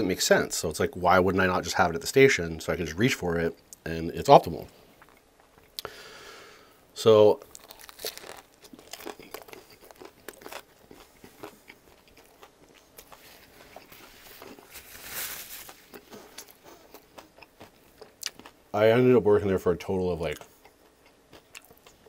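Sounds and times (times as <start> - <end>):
crunchy chewing: 7.4 - 18.6, 20.3 - 22.0.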